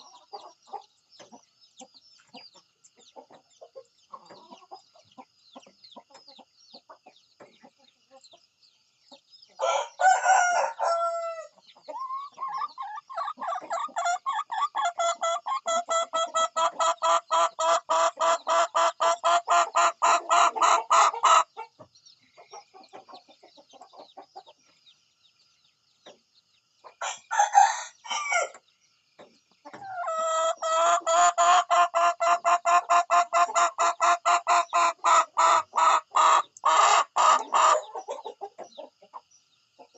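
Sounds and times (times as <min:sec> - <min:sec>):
chickens clucking: 0:00.0 - 0:39.9
chicken calling: 0:09.6 - 0:21.7, 0:29.7 - 0:38.6.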